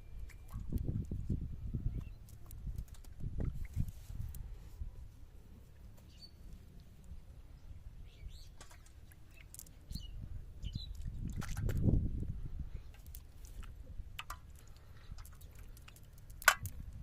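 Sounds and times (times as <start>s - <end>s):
steady low rumble: 0.0s - 17.0s
bird chirps: 8.0s - 11.0s.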